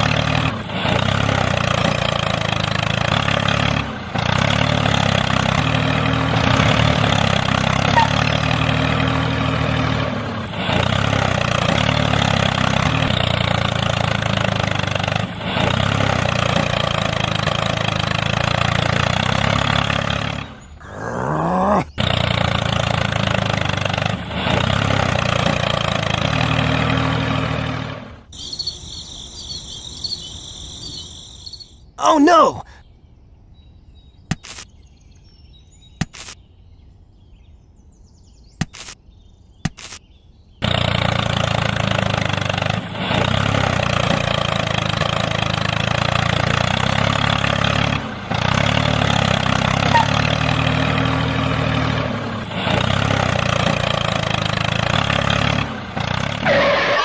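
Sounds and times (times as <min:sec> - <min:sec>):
tractor engine running: 0:00.0 - 0:31.8, 0:40.6 - 0:57.0
faint high-pitched chirping: 0:28.4 - 0:32.0.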